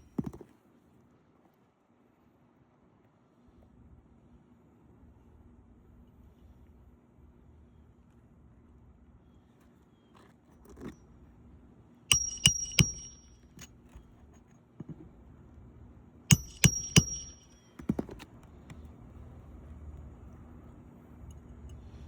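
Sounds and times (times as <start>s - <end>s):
hammer striking metal: 12.1s - 13.4s, 16.3s - 17.7s.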